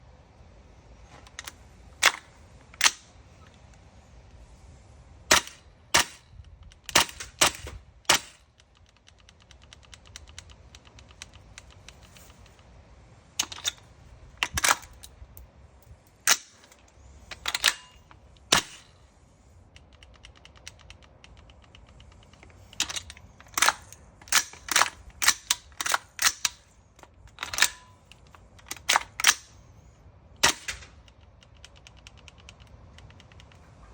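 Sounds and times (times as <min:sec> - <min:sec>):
faint rifle clicks: 0:01.1 - 0:33.9
airsoft rifle shots: 0:05.3 - 0:06.3, 0:06.9 - 0:08.4, 0:17.4 - 0:19.0, 0:30.4 - 0:31.0.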